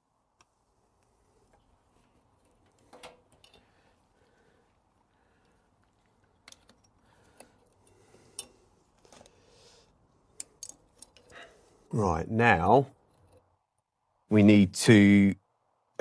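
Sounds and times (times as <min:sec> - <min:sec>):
faint clicks and taps of small parts: 0:05.1 - 0:09.4, 0:10.3 - 0:11.4.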